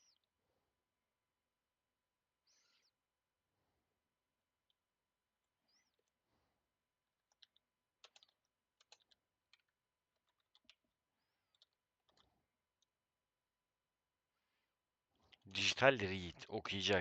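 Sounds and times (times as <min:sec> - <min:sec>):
faint keyboard typing: 0:07.2 - 0:12.9.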